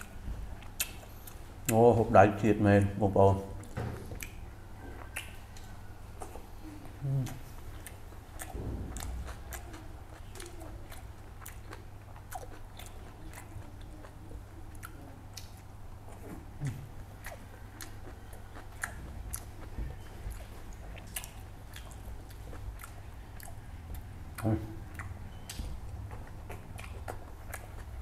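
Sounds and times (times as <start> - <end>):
chewing and lip-smacking: 0.0 - 1.8, 2.8 - 28.0
wet mouth clicks: 0.7 - 1.8, 5.0 - 15.6, 24.4 - 27.9.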